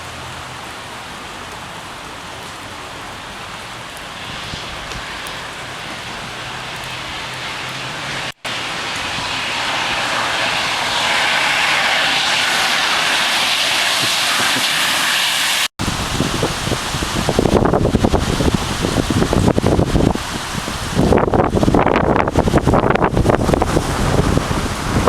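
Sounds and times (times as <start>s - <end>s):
rain hissing: 0.0s - 25.0s
wind buffeting microphone: 4.0s - 25.0s.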